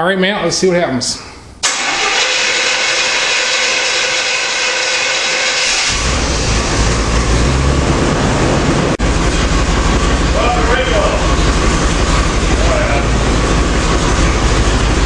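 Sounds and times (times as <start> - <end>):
truck engine whirring: 1.6 - 15.0
deep low rumble: 5.9 - 15.0.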